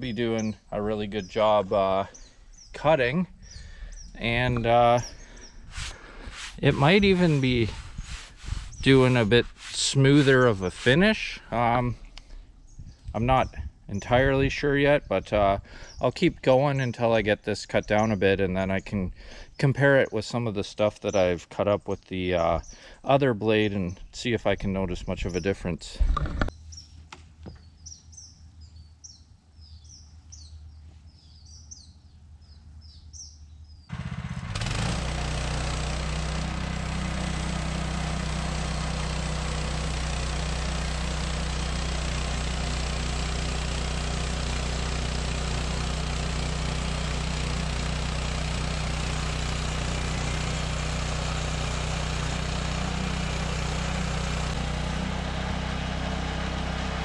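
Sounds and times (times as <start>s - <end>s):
birds chirping: 0.0s - 33.9s
sawmill engine running: 3.6s - 12.0s, 33.9s - 57.0s.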